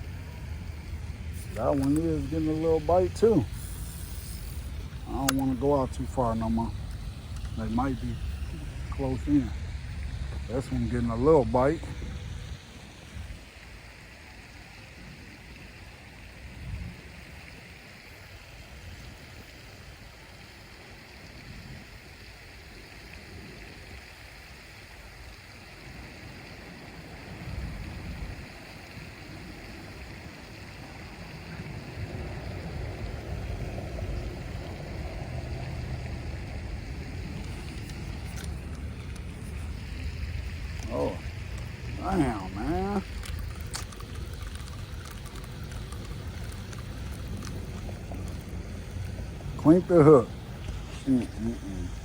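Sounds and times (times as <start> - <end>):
wind buffeting microphone: 0.0 - 13.4, 26.8 - 30.0
steady hiss: 0.0 - 52.0.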